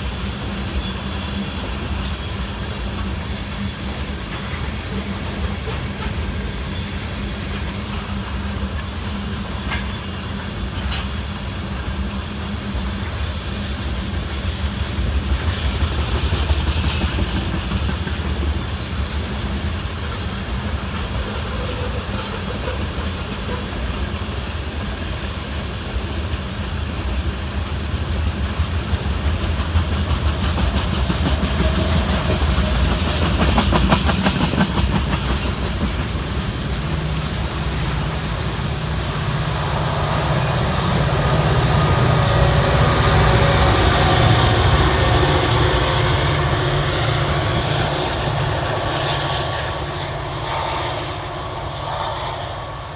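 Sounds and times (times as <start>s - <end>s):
train wheels rumbling on rail: 0.0s - 52.9s
wheels clicking over track: 27.9s - 38.2s.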